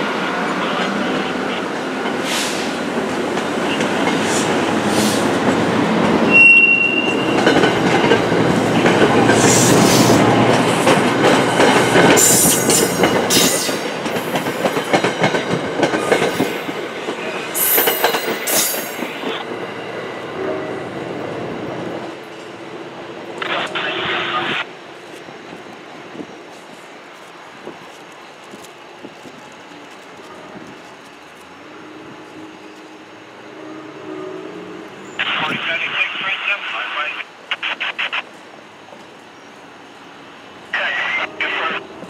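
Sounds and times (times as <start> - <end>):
high wheel squeal: 6.3 - 7.4.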